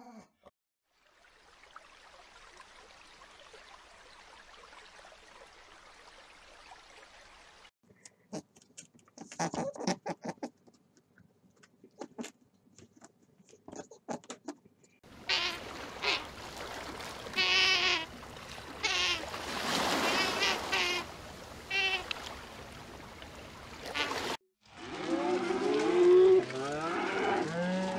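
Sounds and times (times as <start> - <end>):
water noise: 0.8 - 7.7, 15.0 - 27.9
sea otter squealing: 17.4 - 18.1, 18.8 - 19.2, 20.1 - 21.0, 21.7 - 22.0.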